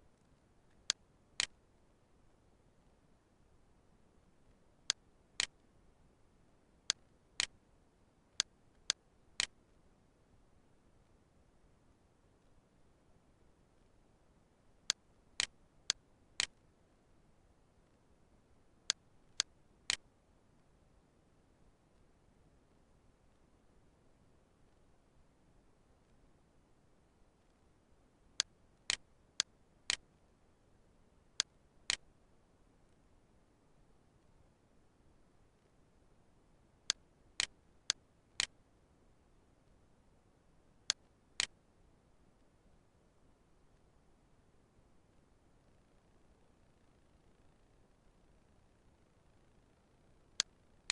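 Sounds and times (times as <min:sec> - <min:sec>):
computer mouse clicking: 0:04.9 - 0:05.6, 0:06.9 - 0:07.6, 0:08.4 - 0:09.6, 0:14.9 - 0:16.6, 0:36.9 - 0:38.6, 0:40.9 - 0:41.6.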